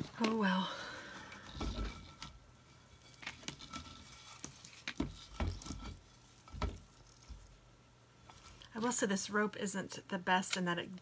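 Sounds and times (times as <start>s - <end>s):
rope rustling: 0.0s - 8.8s.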